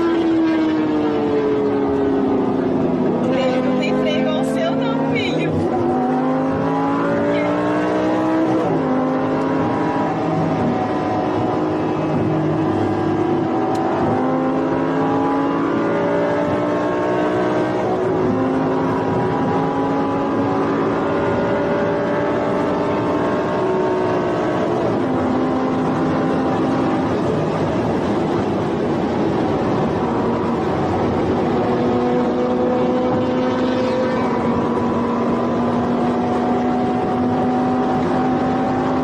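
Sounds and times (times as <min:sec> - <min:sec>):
car engine accelerating: 0:00.0 - 0:39.0
road and wind noise: 0:00.0 - 0:39.0.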